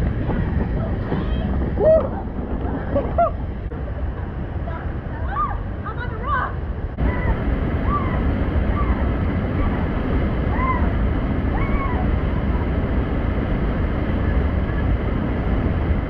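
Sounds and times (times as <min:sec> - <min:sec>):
waterfall rushing: 0:07.0 - 0:15.8.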